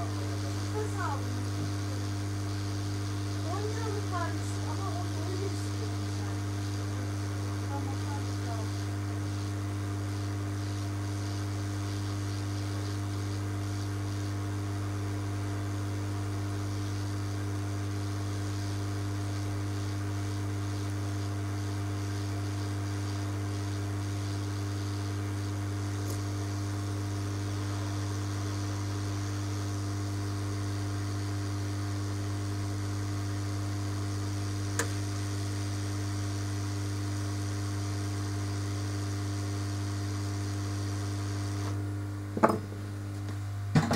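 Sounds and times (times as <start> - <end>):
electrical mains hum: 0.0 - 43.9
small click: 26.0 - 26.3, 34.7 - 35.0.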